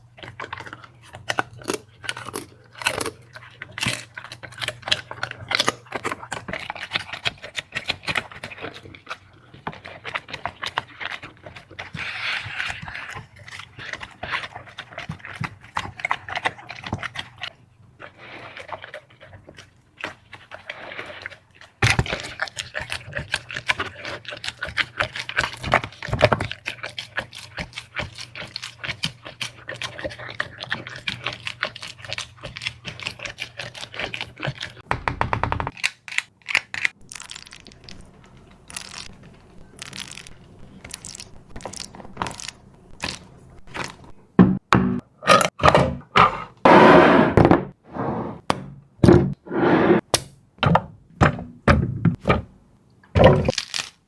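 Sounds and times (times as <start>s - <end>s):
dog chewing and licking: 0.0s - 34.9s.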